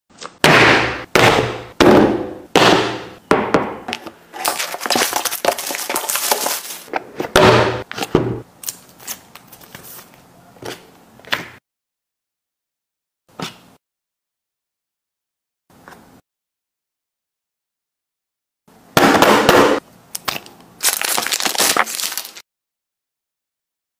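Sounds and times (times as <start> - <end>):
sharp loud knocks: 0.4 - 3.9, 7.3 - 8.4
packaging crackling: 4.3 - 6.9, 20.2 - 22.4.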